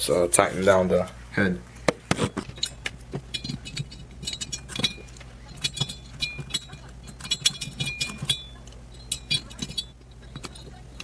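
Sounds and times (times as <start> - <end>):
metal tool clicks and clinks: 2.4 - 11.0.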